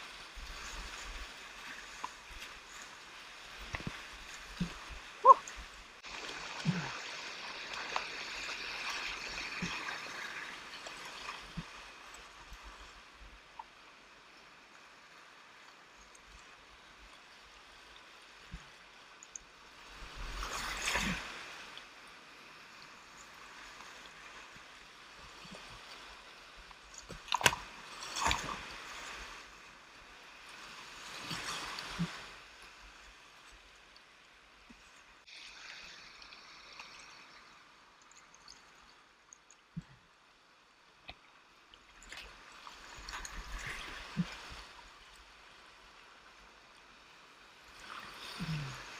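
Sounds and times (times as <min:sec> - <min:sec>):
kayak splashing: 0:00.0 - 0:12.6, 0:25.4 - 0:29.7.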